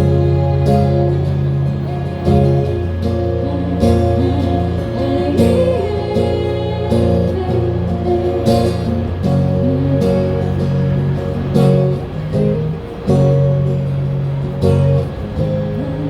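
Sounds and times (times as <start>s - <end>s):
person singing: 0.0s - 10.9s
live band with guitar: 0.0s - 16.0s.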